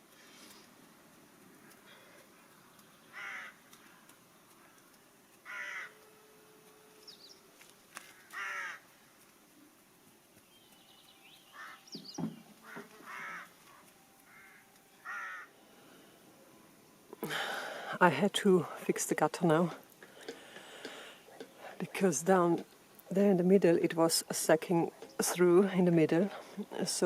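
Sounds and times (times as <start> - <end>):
crow cawing: 3.1 - 4.8, 5.4 - 6.0, 8.1 - 8.9, 11.5 - 11.9, 12.6 - 15.6.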